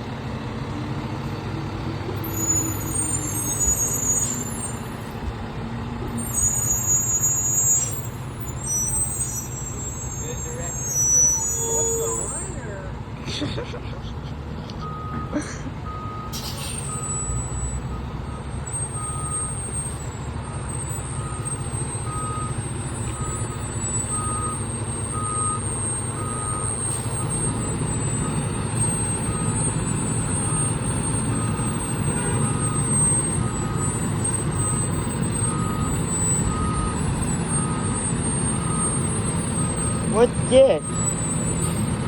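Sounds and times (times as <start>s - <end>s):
truck engine rumbling: 0.0s - 42.0s
backup alarm beeping: 15.9s - 41.8s.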